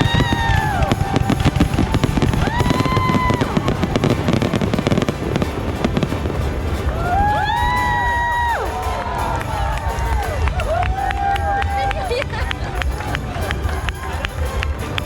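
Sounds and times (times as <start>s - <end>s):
high held tones: 0.0s - 9.7s
fireworks bangs and crackles: 0.0s - 15.0s.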